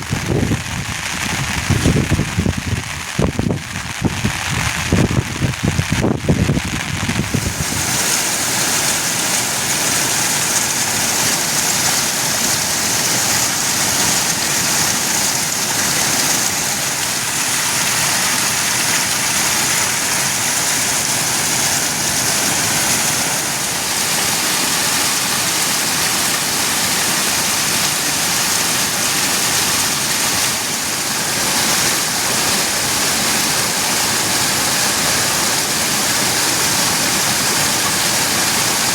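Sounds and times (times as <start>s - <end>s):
low rumble: 0.0s - 7.6s
heavy rain falling: 0.0s - 38.9s.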